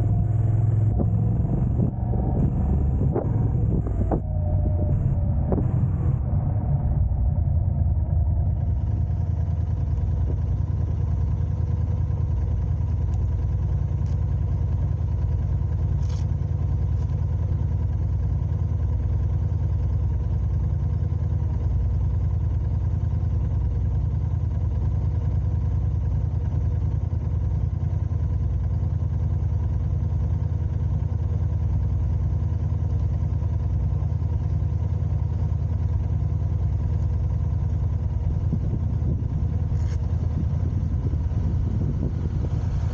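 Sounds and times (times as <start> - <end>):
car engine humming: 0.0 - 18.0, 36.2 - 42.9.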